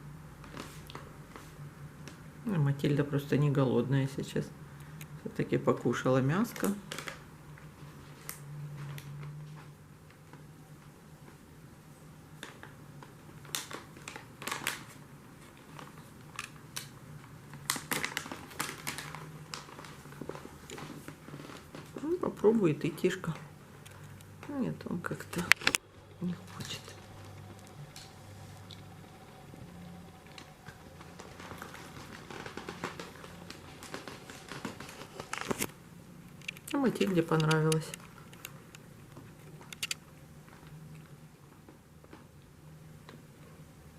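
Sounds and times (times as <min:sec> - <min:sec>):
faint low hum: 0:00.0 - 0:43.9
cat chewing crunchy treats: 0:26.4 - 0:35.7.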